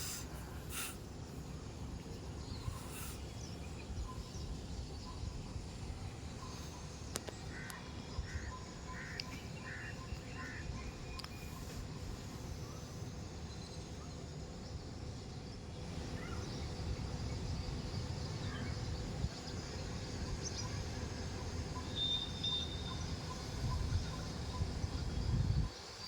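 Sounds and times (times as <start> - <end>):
faint bird calls: 16.1 - 16.5
wind rumbling on microphone: 23.5 - 26.0.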